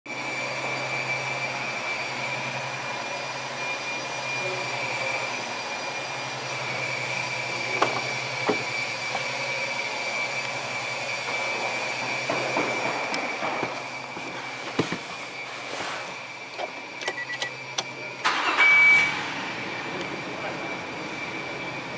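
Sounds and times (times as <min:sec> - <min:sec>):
high-pitched whine: 0:00.1 - 0:21.9
minivan engine idling: 0:02.2 - 0:12.3, 0:16.4 - 0:21.9.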